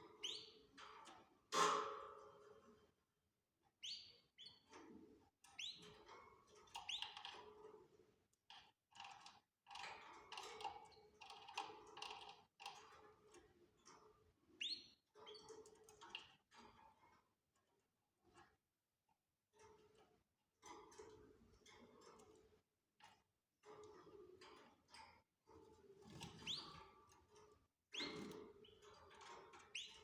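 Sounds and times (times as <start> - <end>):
canaries chirping: 0.2 - 0.6, 26.1 - 26.8, 27.9 - 28.9, 29.6 - 30.0.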